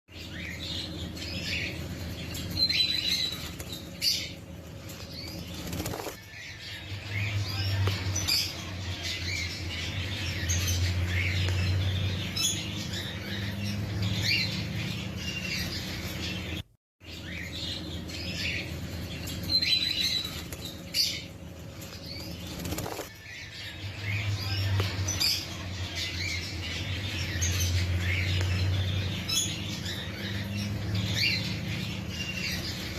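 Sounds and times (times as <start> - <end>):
birds chirping: 0.1 - 32.9
wings fluttering: 2.2 - 6.3, 20.0 - 23.2.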